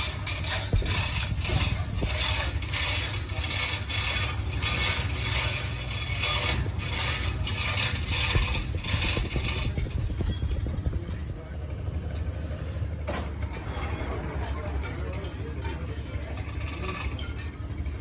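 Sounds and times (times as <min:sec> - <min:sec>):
mechanical tool strokes: 0:00.0 - 0:10.5.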